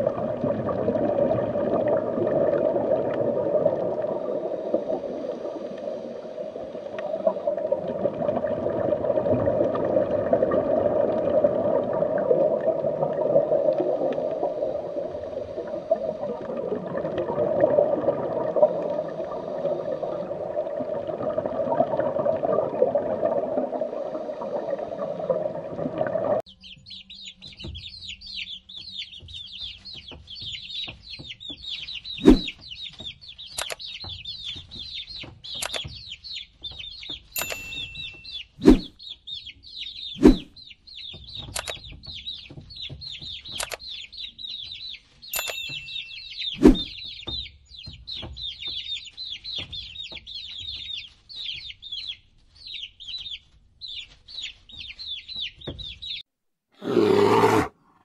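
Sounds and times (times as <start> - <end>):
chicks peeping: 26.6 - 45.3, 45.9 - 56.2
brief electronic chimes: 37.4 - 38.3.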